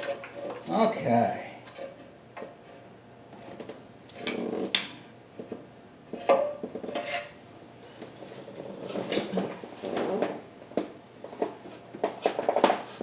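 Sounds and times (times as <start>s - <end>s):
metal clanks and scrapes: 0.0s - 0.7s, 1.7s - 7.4s.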